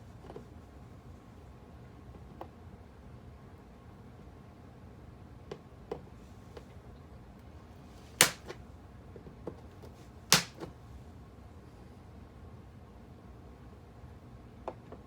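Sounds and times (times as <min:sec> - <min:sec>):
loud sharp snaps of rail cutting: 0:08.2 - 0:08.6, 0:10.3 - 0:10.6.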